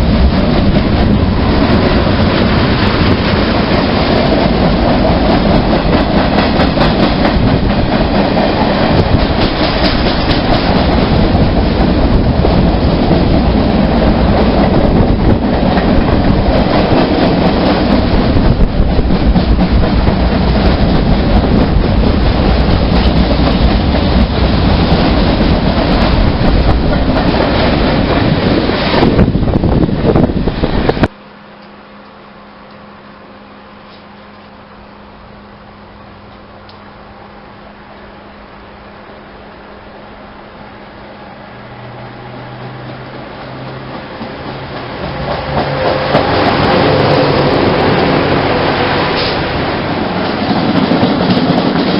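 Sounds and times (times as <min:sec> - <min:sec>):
train wheels clattering on rails: 0:00.0 - 0:31.1, 0:42.2 - 0:51.9.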